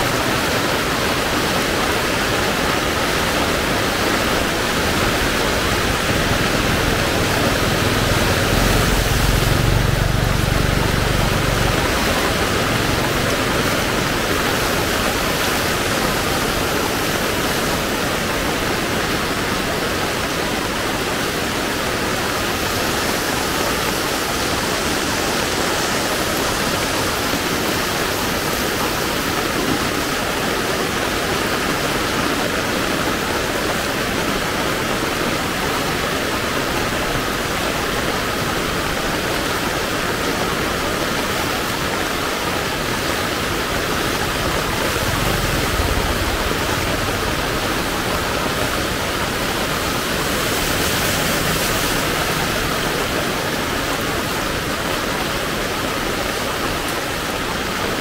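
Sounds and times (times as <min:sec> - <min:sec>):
heavy rain pouring: 0:00.0 - 0:58.0
low rumble: 0:04.9 - 0:14.4, 0:42.9 - 0:51.9.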